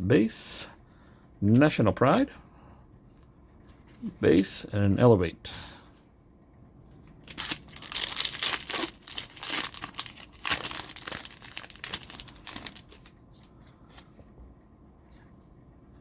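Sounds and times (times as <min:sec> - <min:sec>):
foil wrapper tearing and crumpling: 0:07.2 - 0:13.2.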